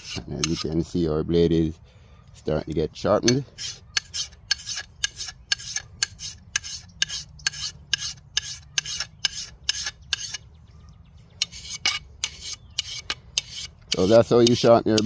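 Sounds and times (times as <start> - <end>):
file rasping on steel blade: 0.0 - 0.8, 3.2 - 10.4, 11.4 - 15.0.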